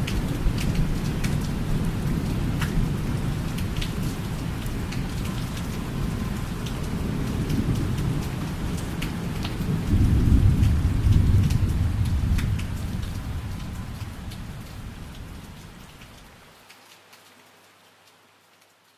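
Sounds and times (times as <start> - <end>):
steady rain: 0.0 - 18.9
low thunder rumble: 9.6 - 15.4.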